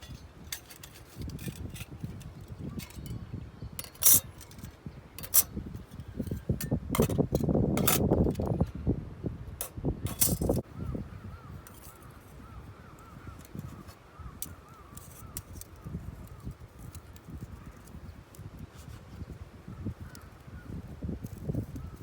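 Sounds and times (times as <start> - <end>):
metal camping gear clinking: 0.0 - 3.2, 3.8 - 8.7, 9.6 - 10.7, 11.6 - 12.4.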